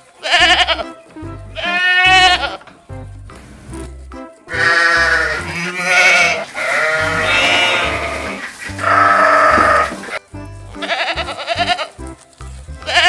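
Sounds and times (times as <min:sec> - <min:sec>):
livestock bleating: 0:00.1 - 0:01.0, 0:01.6 - 0:02.7, 0:04.5 - 0:10.2, 0:10.8 - 0:12.0.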